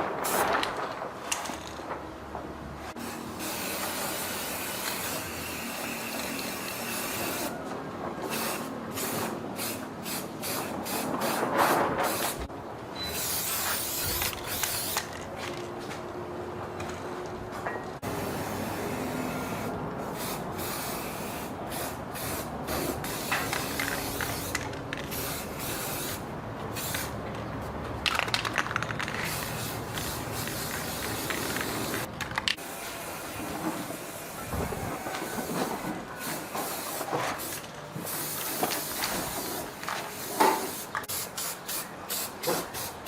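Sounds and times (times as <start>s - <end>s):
paint spray gun hissing: 8.3s - 11.4s.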